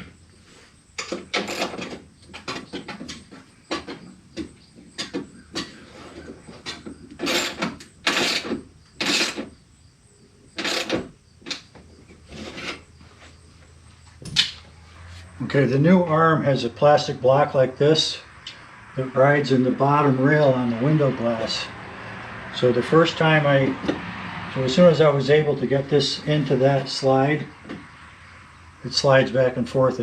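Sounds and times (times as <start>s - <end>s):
metal clanks knocks and scrapes: 0.0s - 9.6s, 10.6s - 13.4s.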